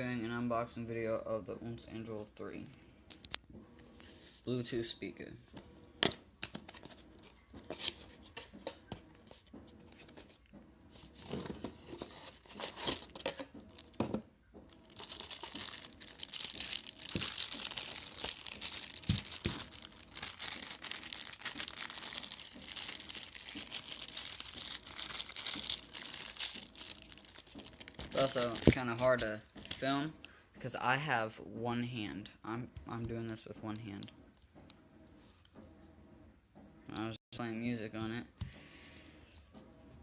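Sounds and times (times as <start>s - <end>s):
packaging rustling and clicking: 6.0s - 10.4s, 11.0s - 29.9s
wrapping crinkling and tearing: 12.0s - 14.0s, 14.7s - 29.9s.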